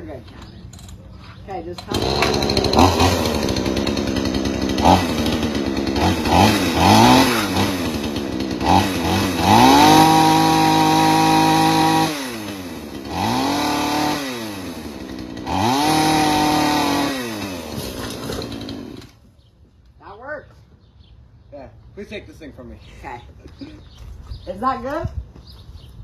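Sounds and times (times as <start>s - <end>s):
chainsaw cutting tree limb: 1.8s - 19.2s
chainsaw revving: 1.8s - 19.2s.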